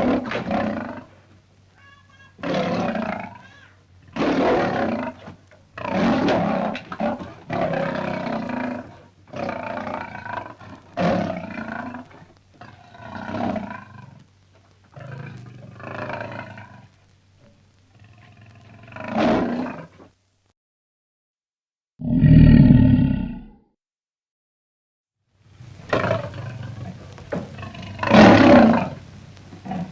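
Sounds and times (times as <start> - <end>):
deep lion growl: 0.0 - 1.5, 2.4 - 14.3, 14.9 - 17.0, 17.9 - 20.0, 22.0 - 23.6, 25.6 - 29.9
lion roaring and grunting: 2.4 - 14.1, 22.0 - 23.6, 25.7 - 29.9.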